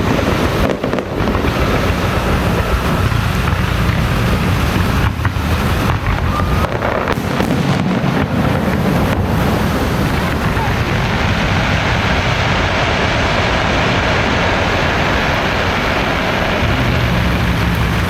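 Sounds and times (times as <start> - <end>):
sharp firecracker cracks: 0.0 - 12.4
firecracker barrage: 0.0 - 18.0.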